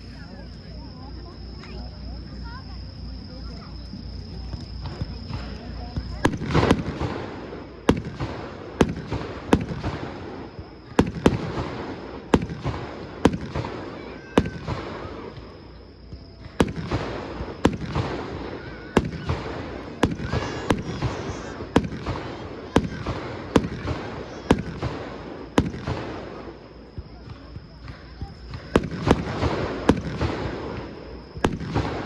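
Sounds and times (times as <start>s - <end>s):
fireworks bursting: 1.6s - 32.0s.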